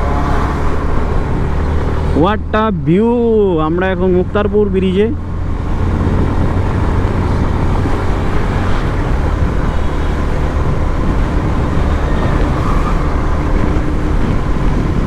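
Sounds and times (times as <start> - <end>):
motorcycle engine at speed: 0.0 - 2.2, 5.2 - 15.0
wind rushing over microphone: 0.0 - 15.0.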